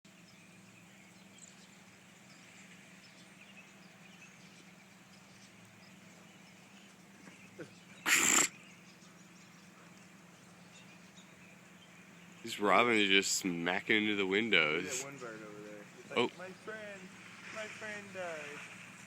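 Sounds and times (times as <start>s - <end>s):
bird chirps: 0.1s - 13.2s.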